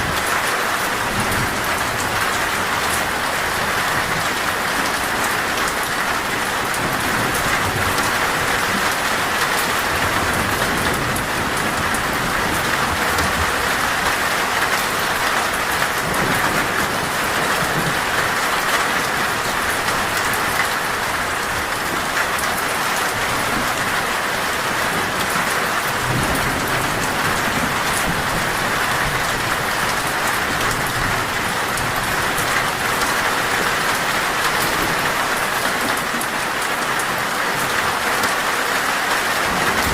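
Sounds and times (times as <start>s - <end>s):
heavy rain on a metal roof: 0.0s - 39.9s
thunder rumbling: 24.6s - 36.1s.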